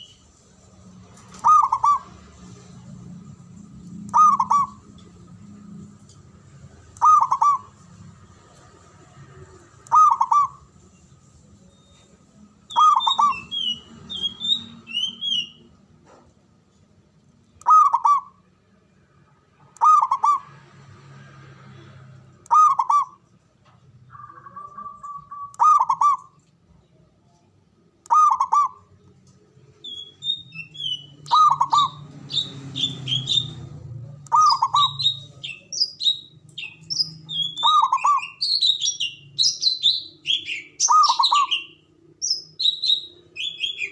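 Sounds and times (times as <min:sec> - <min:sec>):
small birds chirping: 0:00.0 - 0:05.8, 0:06.7 - 0:15.8, 0:21.7 - 0:43.9
dove cooing: 0:01.4 - 0:02.1, 0:04.1 - 0:04.8, 0:07.0 - 0:07.7, 0:09.9 - 0:10.6, 0:28.1 - 0:28.8.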